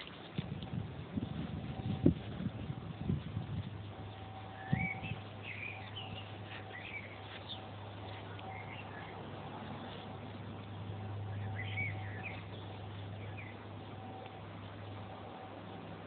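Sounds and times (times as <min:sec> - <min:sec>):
steady low hum: 0:00.0 - 0:16.0
birds chirping: 0:03.6 - 0:15.9.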